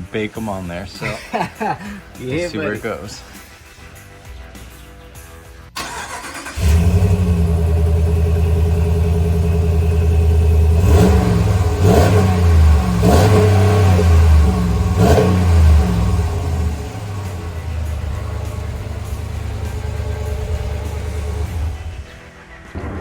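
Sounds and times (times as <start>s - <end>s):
pickup engine starting and revving: 5.8s - 22.3s.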